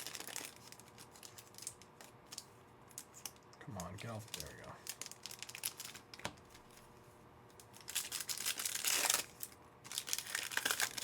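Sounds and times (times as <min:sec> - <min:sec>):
card pack wrapper crinkling and tearing: 0:00.0 - 0:06.8, 0:07.6 - 0:11.0.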